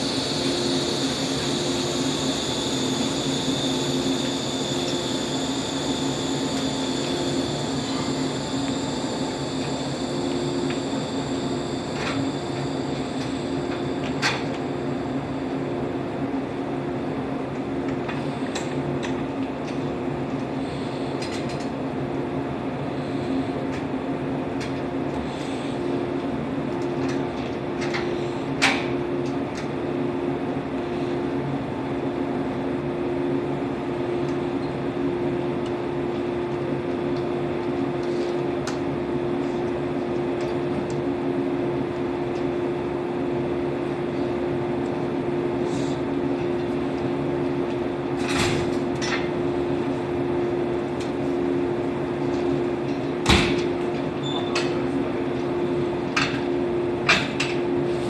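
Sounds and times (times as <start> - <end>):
electric train humming: 0.0 - 28.2.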